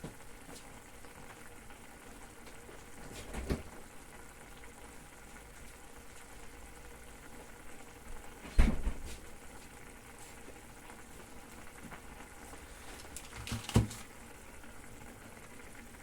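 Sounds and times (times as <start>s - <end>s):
onion sizzling in a pan: 9.2s - 16.0s.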